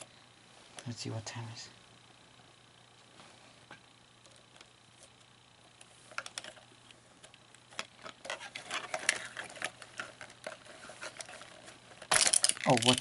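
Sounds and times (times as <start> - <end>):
plastic parts clicking and rattling: 6.1 - 13.0.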